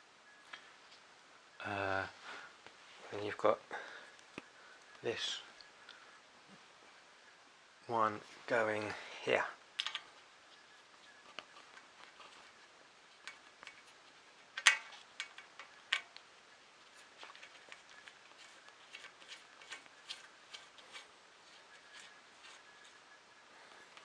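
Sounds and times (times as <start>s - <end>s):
plastic parts clicking and tapping: 9.8s - 10.1s, 14.5s - 16.2s.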